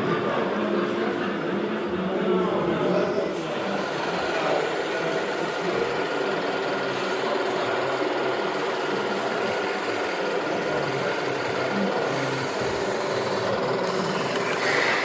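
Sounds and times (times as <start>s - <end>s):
small motor whirring: 3.4s - 15.0s.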